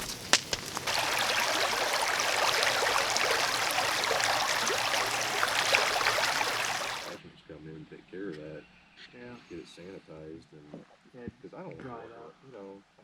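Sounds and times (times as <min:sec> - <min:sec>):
steady rain pattering: 0:00.0 - 0:07.2.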